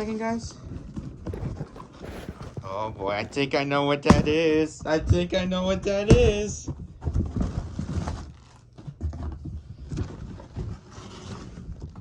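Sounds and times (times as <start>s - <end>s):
cardboard box being handled: 1.3s - 4.5s.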